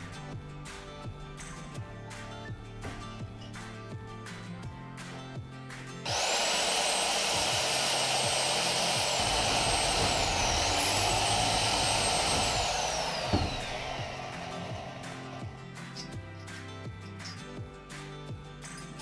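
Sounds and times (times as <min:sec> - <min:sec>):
electric power tool whining: 0:06.0 - 0:17.4.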